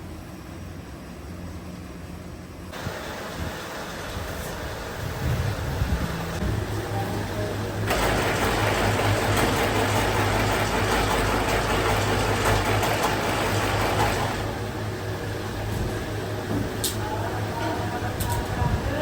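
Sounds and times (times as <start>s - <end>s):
factory machinery humming: 0.0s - 19.0s
loud rushing hissing noise: 2.2s - 9.8s.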